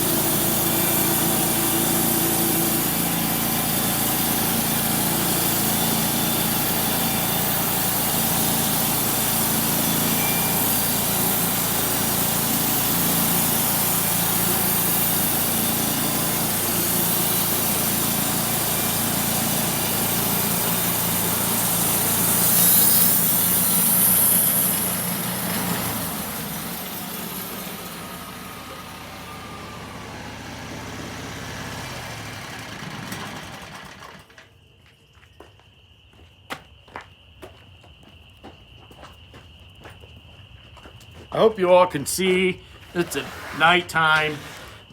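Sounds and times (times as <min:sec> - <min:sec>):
saw blade cutting through log: 0:00.0 - 0:30.5, 0:42.2 - 0:44.9
sawmill engine running: 0:00.0 - 0:34.4, 0:41.4 - 0:44.9.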